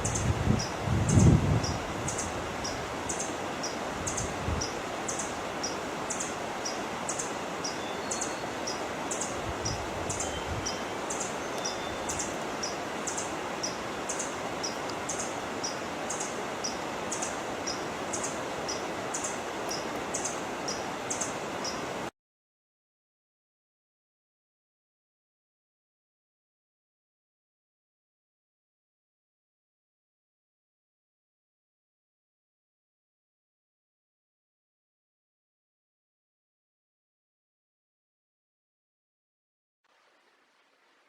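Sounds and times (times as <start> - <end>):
steady rushing hiss: 0.0 - 22.1.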